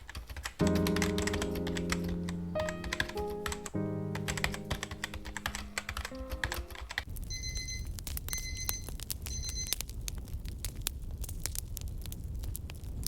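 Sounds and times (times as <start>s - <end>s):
keyboard typing: 0.0s - 7.8s
held music chords: 0.6s - 7.0s.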